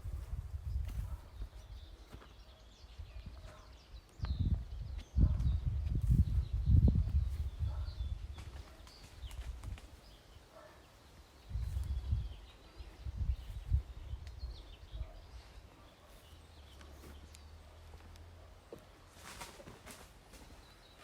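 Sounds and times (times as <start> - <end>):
birds chirping: 0.0 - 21.0
low rumbles on microphone: 3.0 - 8.7.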